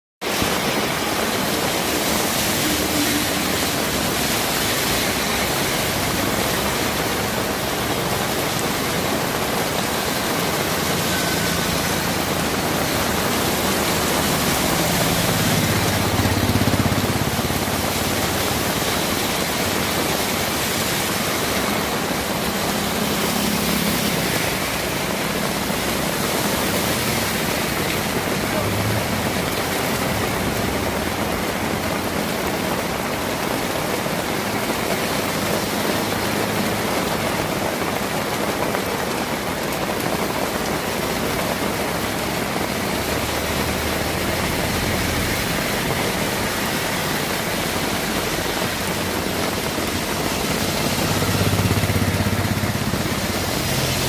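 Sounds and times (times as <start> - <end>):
heavy rain falling: 0.2 - 54.0.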